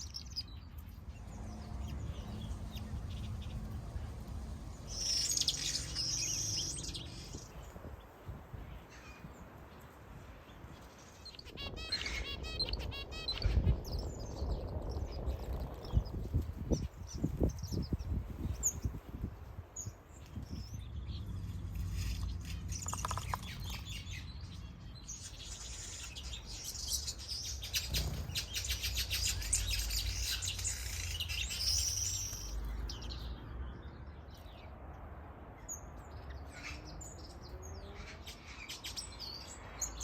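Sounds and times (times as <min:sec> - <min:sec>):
finches chirping and twittering: 0:00.0 - 0:04.2, 0:04.8 - 0:07.7, 0:10.7 - 0:19.0, 0:19.8 - 0:34.7.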